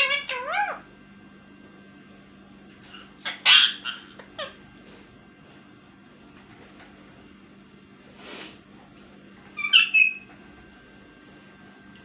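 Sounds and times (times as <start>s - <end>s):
parrot squawking and calling: 0.0s - 0.9s, 2.9s - 4.6s, 9.6s - 10.3s.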